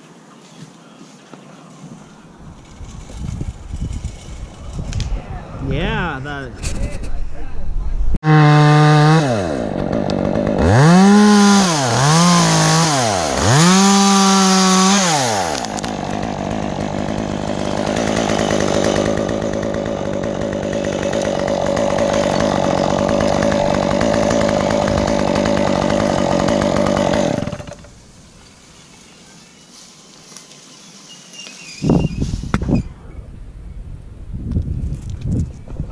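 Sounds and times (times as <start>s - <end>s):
chainsaw revving and cutting wood: 8.2s - 28.0s.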